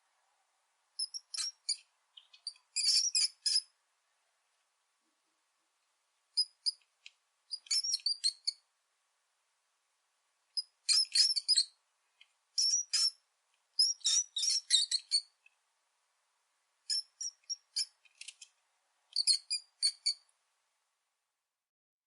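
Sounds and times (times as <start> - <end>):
rat squeaking: 1.0 - 3.7, 6.4 - 6.8, 7.5 - 8.6, 10.6 - 11.8, 12.6 - 13.2, 13.8 - 15.4, 16.9 - 18.5, 19.1 - 20.3.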